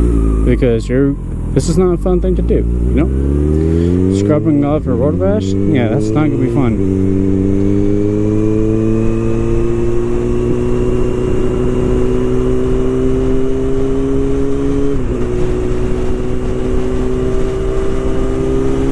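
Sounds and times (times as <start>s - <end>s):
low rumble: 0.0s - 12.1s
motorcycle engine accelerating: 0.0s - 18.9s.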